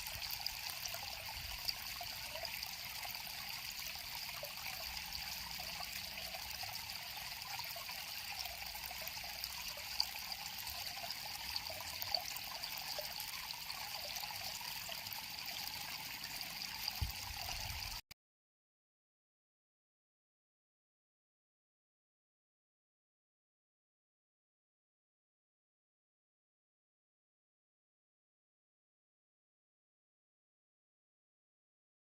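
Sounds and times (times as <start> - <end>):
river water flowing: 0.0 - 18.0.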